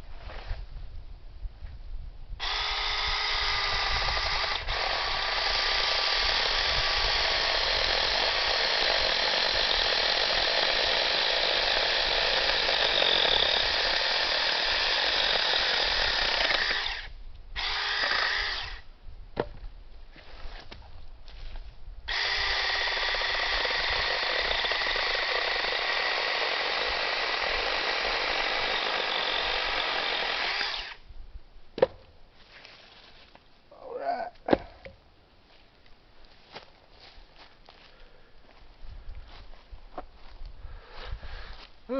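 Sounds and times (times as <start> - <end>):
mini chainsaw cutting wood: 2.4 - 18.9, 22.1 - 31.0.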